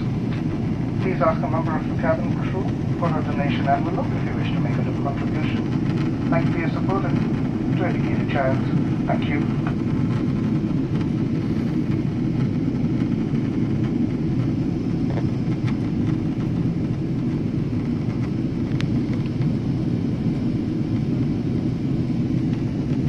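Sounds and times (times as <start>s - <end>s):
airliner cabin drone: 0.0s - 23.0s.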